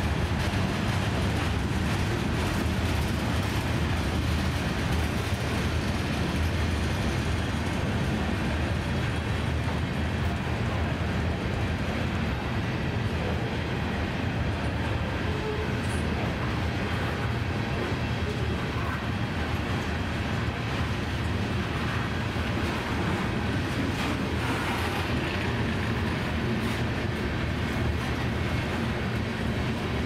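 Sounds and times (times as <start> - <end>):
freight train wheels rumbling on rails: 0.0 - 30.0.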